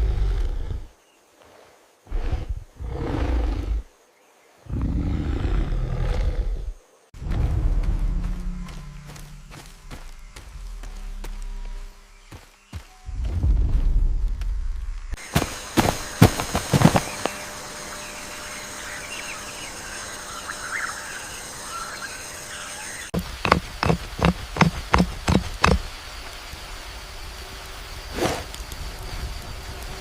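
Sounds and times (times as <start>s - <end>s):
high insect-like buzz: 1.1s - 30.0s
low rumble: 7.2s - 12.3s, 13.0s - 15.2s
sharp knocks or footfalls: 15.3s - 17.3s, 23.2s - 25.9s.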